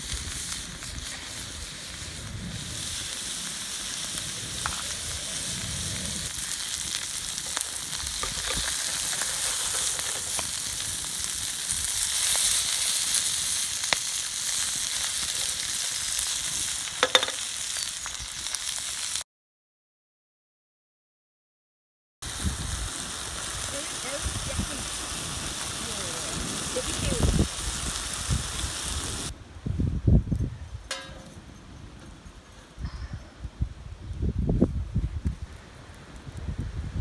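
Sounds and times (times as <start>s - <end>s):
food sizzling in a pan: 0.0s - 19.2s, 22.2s - 29.3s.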